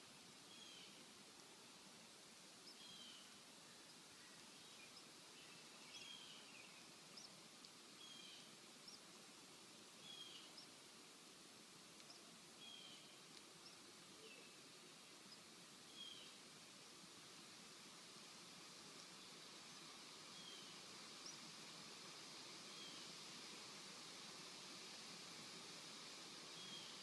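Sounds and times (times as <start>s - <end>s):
steady hiss: 0.0s - 27.0s
small bird chirps: 2.6s - 7.4s, 10.0s - 10.8s, 15.2s - 16.4s.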